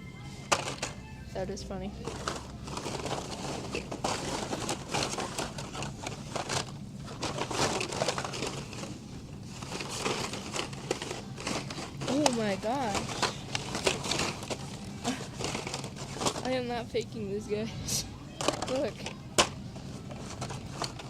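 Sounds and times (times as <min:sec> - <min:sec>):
plastic packaging crinkling: 0:02.0 - 0:16.6.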